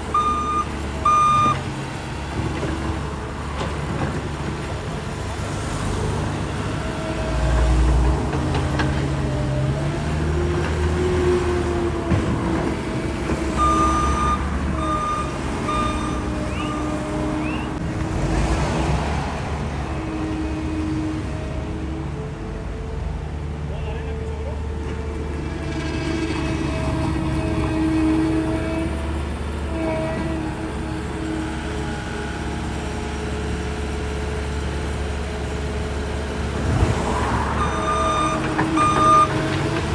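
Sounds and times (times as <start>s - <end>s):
diesel engine running: 0.0s - 39.9s
backup alarm beeping: 0.2s - 1.6s, 13.6s - 17.7s, 37.6s - 39.4s
short high squeaks: 15.8s - 17.8s.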